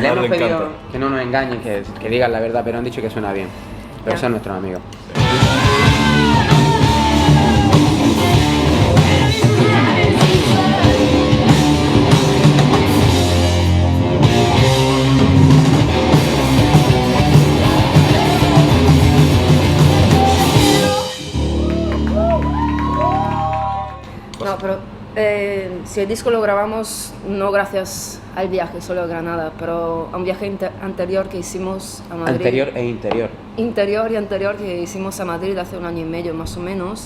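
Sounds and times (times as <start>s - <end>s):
heavy rock music: 5.1s - 22.6s
person singing: 5.2s - 11.5s, 19.8s - 21.4s.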